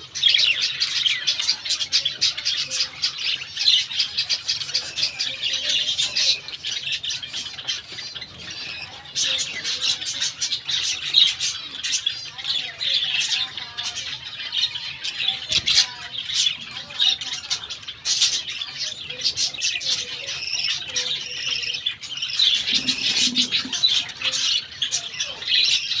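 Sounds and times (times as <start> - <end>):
budgerigars chattering: 0.0 - 26.0.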